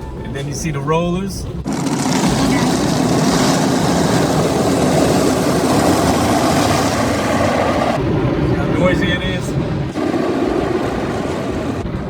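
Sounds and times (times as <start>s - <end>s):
car wash brushes scrubbing: 1.7s - 8.0s.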